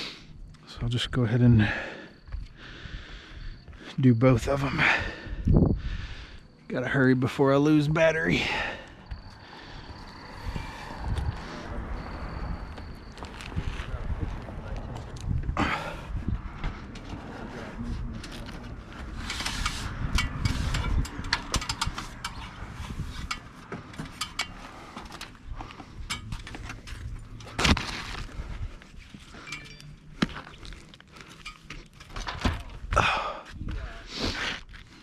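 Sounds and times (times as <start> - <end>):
metal clicks and scrapes: 18.2 - 28.3, 29.0 - 32.4.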